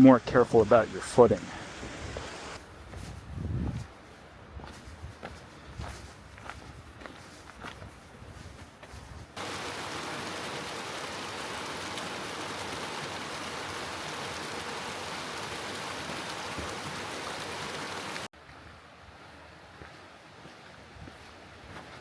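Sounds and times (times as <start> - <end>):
outdoor ambience: 0.0 - 22.0
footsteps on a trail: 2.6 - 9.5, 18.2 - 18.8, 19.7 - 22.0
flowing water rushing: 9.4 - 18.3.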